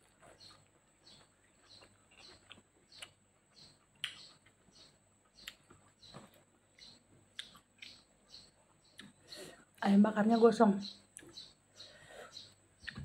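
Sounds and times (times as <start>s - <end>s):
wet chewing lip smacks: 4.0s - 4.5s.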